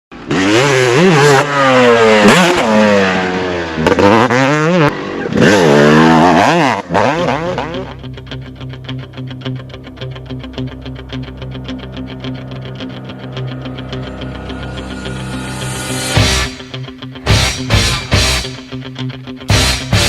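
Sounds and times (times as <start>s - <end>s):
motocross bike engine revving: 0.1s - 8.8s
guitar music: 6.9s - 20.0s.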